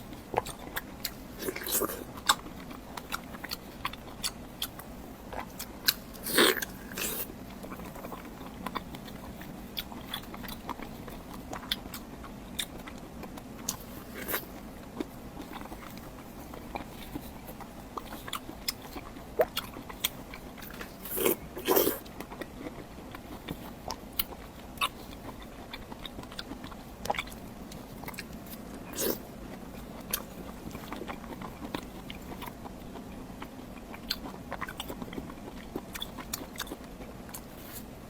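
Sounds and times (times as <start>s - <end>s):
person biting and chewing: 0.3s - 12.0s, 12.6s - 22.8s, 24.2s - 29.2s.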